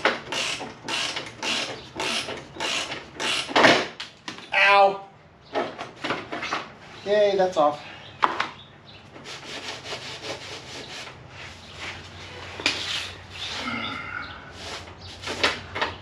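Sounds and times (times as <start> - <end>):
scraping and rubbing on metal: 9.1 - 13.9, 14.5 - 15.8.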